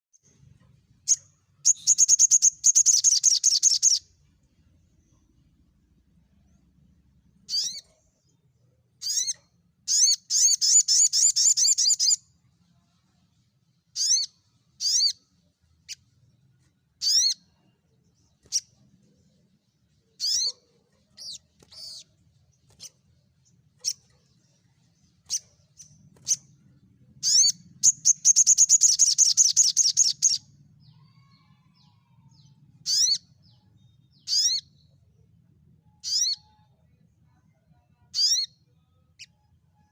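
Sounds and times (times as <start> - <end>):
fast bird trills: 1.6 - 4.0, 7.5 - 7.9, 27.2 - 30.4, 36.0 - 36.5.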